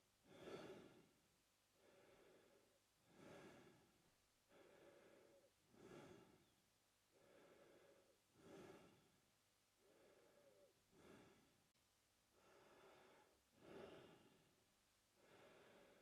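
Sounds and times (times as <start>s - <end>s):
man breathing through mouth: 0.3s - 1.0s, 1.8s - 3.8s, 4.5s - 6.5s, 7.1s - 9.1s, 9.8s - 11.5s, 12.4s - 14.4s.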